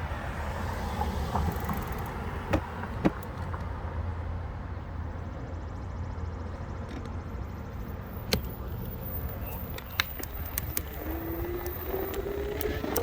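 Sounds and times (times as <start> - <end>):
electric bike riding rumble: 0.0 - 13.0.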